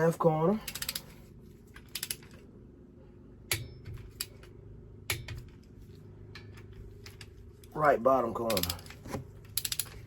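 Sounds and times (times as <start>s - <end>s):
torque wrench clicking: 0.7s - 1.0s, 1.8s - 2.3s, 9.5s - 10.0s.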